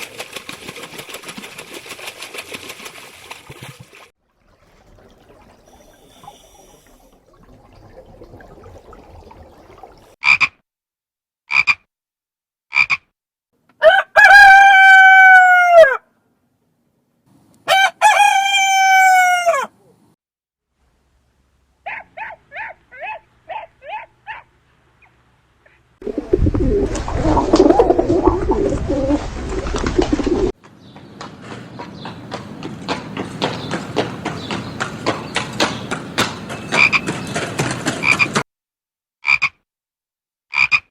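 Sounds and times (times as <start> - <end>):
short croaking calls: 10.2 - 10.6, 11.5 - 11.9, 12.7 - 13.1, 39.2 - 39.6, 40.5 - 40.9
rooster crowing: 13.8 - 16.1, 17.7 - 19.7.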